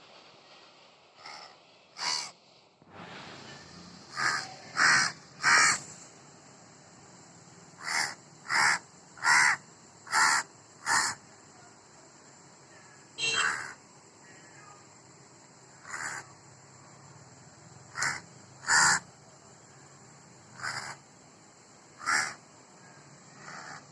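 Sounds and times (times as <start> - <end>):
crow cawing: 1.2 - 2.3, 4.1 - 5.8, 7.8 - 11.2, 13.2 - 13.8, 15.8 - 16.3, 17.9 - 19.0, 20.6 - 21.0, 22.0 - 22.4, 23.3 - 23.9.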